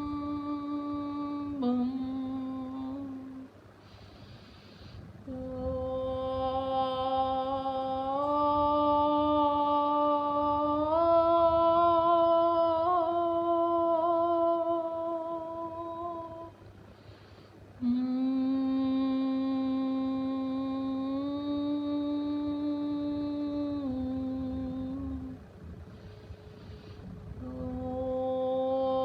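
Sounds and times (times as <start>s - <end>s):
person humming long notes: 0.0s - 3.5s, 5.2s - 16.6s, 17.8s - 25.4s, 27.3s - 29.0s
person breathing: 3.7s - 5.3s, 16.8s - 18.0s, 25.4s - 27.4s.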